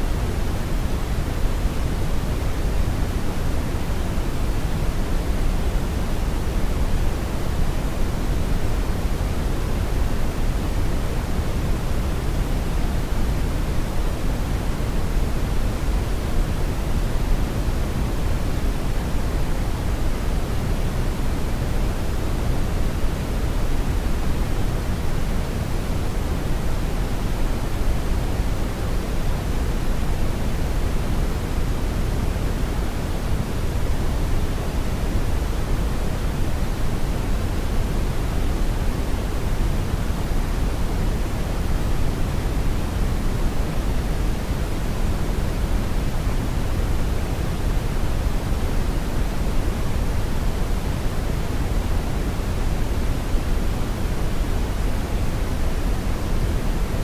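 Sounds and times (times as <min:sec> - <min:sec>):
brown noise rumble: 0:00.0 - 0:57.0.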